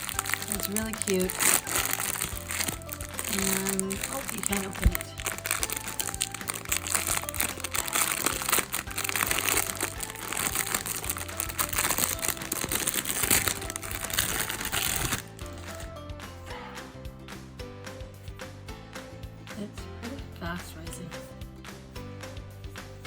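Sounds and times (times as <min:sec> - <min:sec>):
plastic packaging crinkling: 0:00.0 - 0:15.8
background music: 0:00.0 - 0:23.0.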